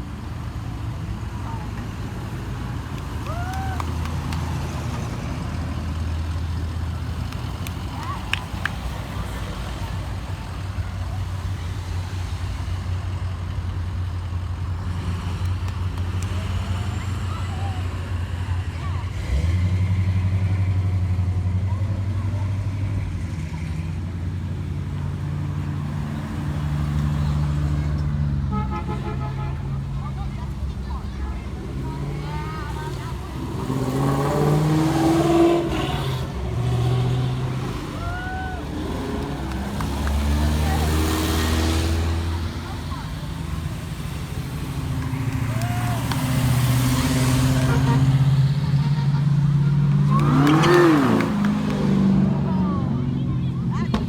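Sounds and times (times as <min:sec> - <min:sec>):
car engines rumbling: 0:00.0 - 0:54.0
car engine accelerating past: 0:31.5 - 0:54.0.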